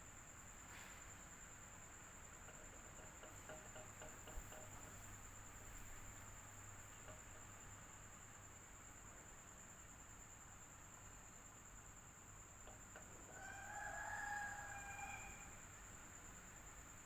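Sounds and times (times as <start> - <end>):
faint ticks: 2.3 - 7.8.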